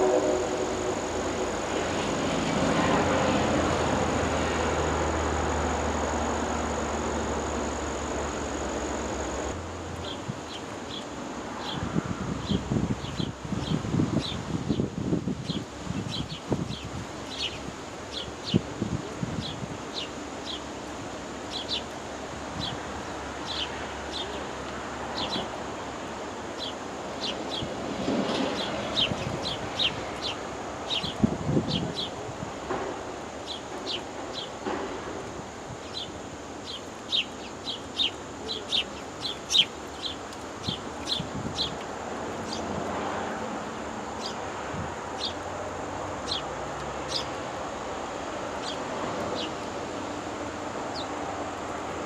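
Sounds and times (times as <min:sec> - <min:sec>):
steady outdoor hiss: 0:00.0 - 0:52.0
hummingbird chip calls: 0:35.8 - 0:42.6.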